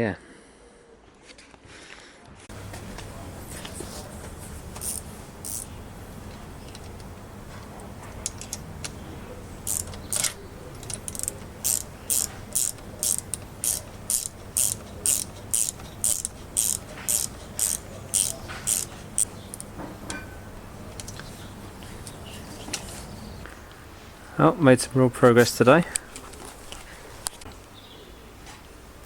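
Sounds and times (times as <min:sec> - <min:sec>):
steady low hum: 0:02.5 - 0:29.0
hand tool clicking: 0:04.8 - 0:05.7, 0:09.6 - 0:19.7.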